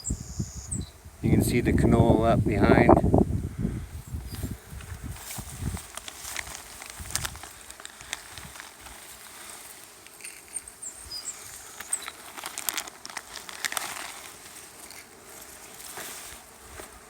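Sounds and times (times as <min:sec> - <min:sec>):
bees buzzing: 0:03.1 - 0:17.0
crackling and rustling: 0:04.0 - 0:17.0.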